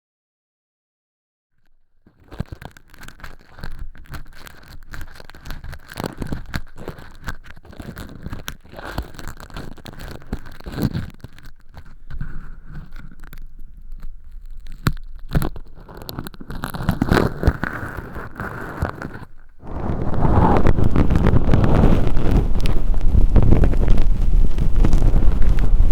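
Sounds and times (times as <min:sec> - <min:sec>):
crackly rustles and small clicks: 0:01.6 - 0:25.9
earpick scraping in ear model: 0:02.1 - 0:22.8
dense rubbing near microphone: 0:02.1 - 0:25.9.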